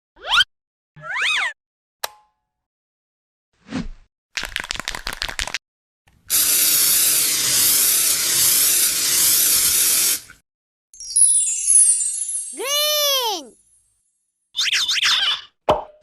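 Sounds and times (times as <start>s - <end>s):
steady spraying hiss: 6.3s - 10.2s
falling chime-like tones: 11.0s - 13.8s.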